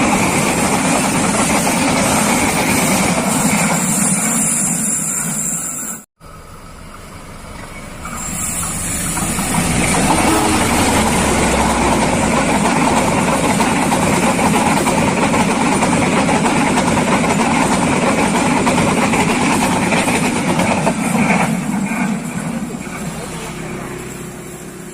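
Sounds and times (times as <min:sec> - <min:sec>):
train passing: 0:00.0 - 0:24.9.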